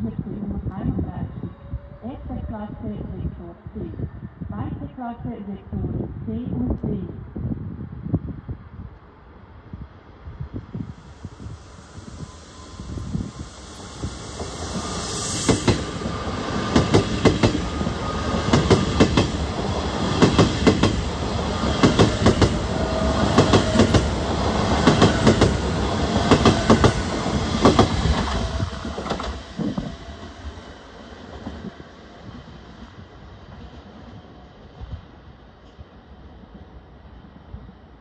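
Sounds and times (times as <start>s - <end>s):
train wheels clacking on rail joints: 16.7s - 21.0s, 21.6s - 29.9s.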